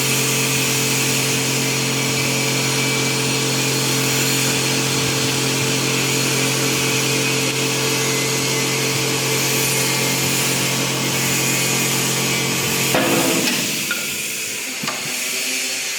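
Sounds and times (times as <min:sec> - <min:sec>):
lathe motor hum: 0:00.0 - 0:15.9
bright hiss: 0:12.7 - 0:15.9.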